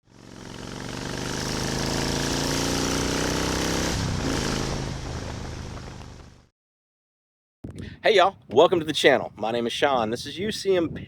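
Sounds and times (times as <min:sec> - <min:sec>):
motorcycle engine running: 0:00.0 - 0:06.5.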